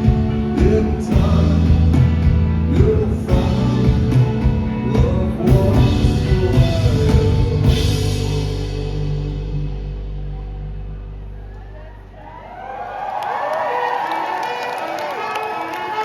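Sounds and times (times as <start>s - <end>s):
live rock band playing: 0.0s - 10.9s.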